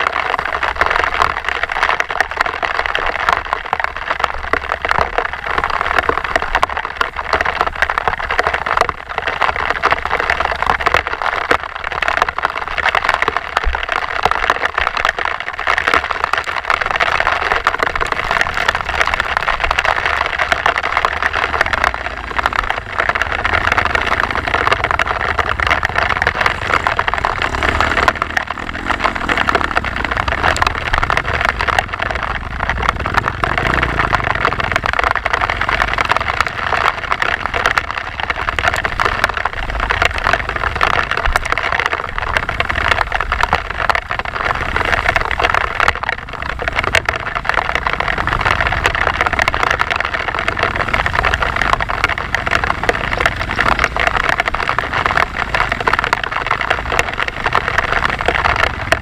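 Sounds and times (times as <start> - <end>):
dense rushing noise: 2.8 - 41.4
dirt bike engine running: 21.0 - 40.8, 48.0 - 59.0.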